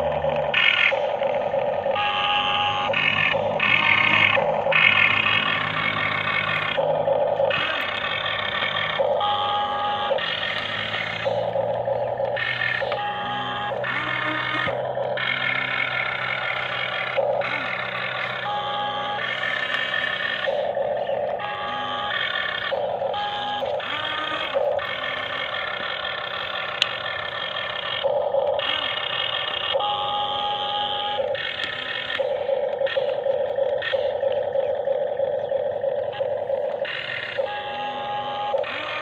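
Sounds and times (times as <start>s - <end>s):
steady low hum: 0.0s - 39.0s
electronic beeping tones: 1.9s - 25.6s, 29.7s - 39.0s.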